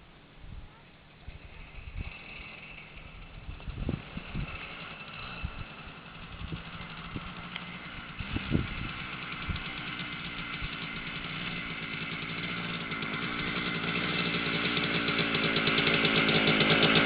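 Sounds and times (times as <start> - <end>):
two-stroke motorcycle engine running: 1.3 - 17.0.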